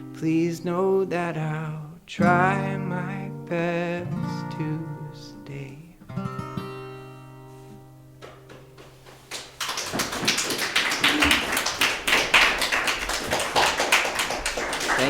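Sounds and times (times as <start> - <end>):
audience applause: 9.2 - 15.0.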